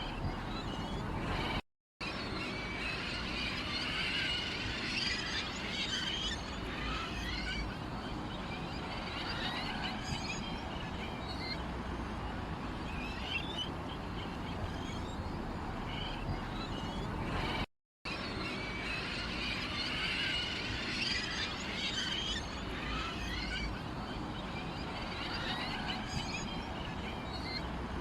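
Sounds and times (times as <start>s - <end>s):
small birds chirping: 0.0s - 1.6s, 2.2s - 18.9s.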